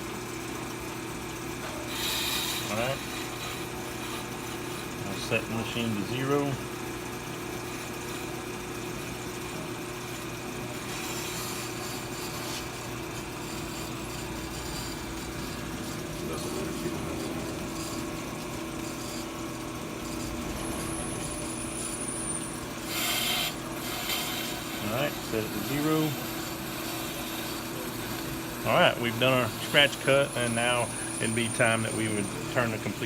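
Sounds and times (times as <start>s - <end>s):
brake lathe humming: 0.3s - 33.0s
hissing scrape: 13.6s - 24.9s.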